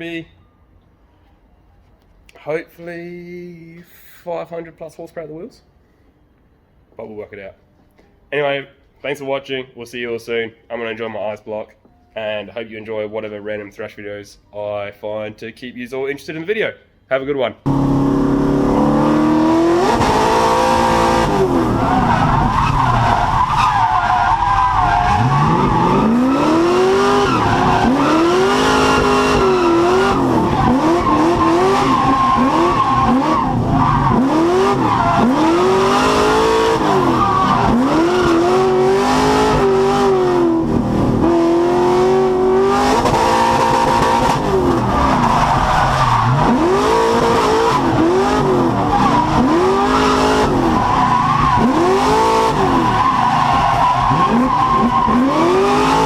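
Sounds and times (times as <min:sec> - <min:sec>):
car engine revving: 0:17.7 - 0:56.0.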